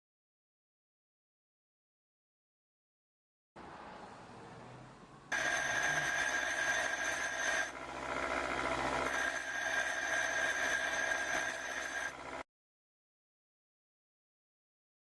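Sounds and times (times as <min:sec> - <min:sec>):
drill bit grinding into metal: 0:05.3 - 0:12.4
electric drill whining: 0:05.3 - 0:12.4.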